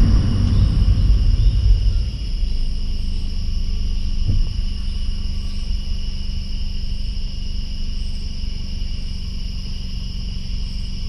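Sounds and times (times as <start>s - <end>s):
crickets and katydids trilling: 0.0s - 11.0s
low car hum: 0.0s - 11.0s.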